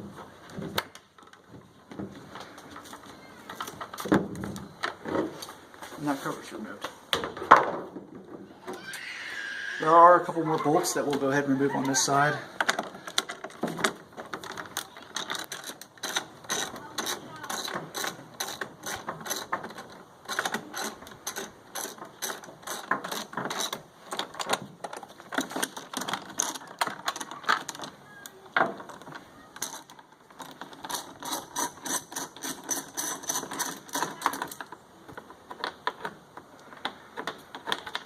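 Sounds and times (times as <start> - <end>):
hand ratchet clicking: 15.2 - 24.5, 29.6 - 34.7.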